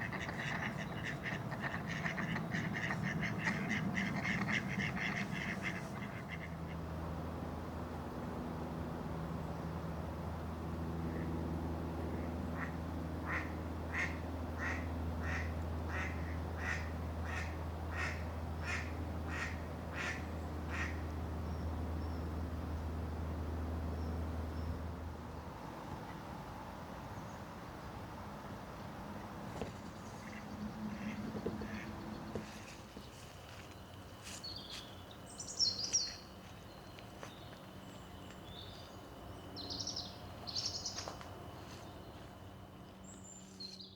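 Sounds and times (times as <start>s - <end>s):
duck quacking: 0.0s - 6.7s, 12.6s - 21.0s, 30.3s - 32.0s
outdoor background noise: 0.0s - 43.9s
songbird trilling: 34.4s - 36.9s.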